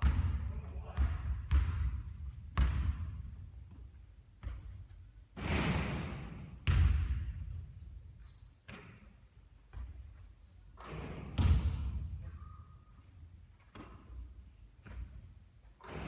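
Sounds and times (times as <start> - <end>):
basketball bouncing on court: 0.0 - 5.0, 6.4 - 7.8, 9.7 - 10.2, 10.8 - 12.3, 13.6 - 16.0
shoe squeaks: 3.2 - 4.0, 7.8 - 9.0, 10.3 - 11.1.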